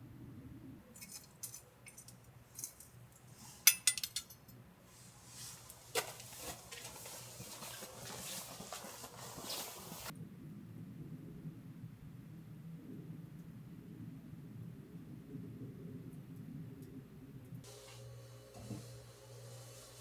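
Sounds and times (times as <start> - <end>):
dishes clinking: 3.7 - 4.5.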